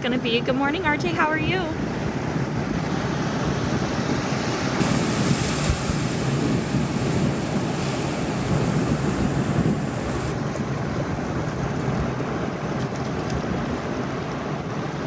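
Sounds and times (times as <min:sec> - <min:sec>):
wind buffeting microphone: 0:00.8 - 0:15.0
ocean surf on shore: 0:01.2 - 0:12.8.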